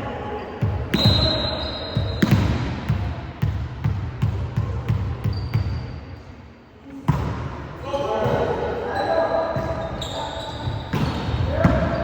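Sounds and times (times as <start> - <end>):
basketball bouncing on court: 1.9 - 5.8, 9.5 - 12.0.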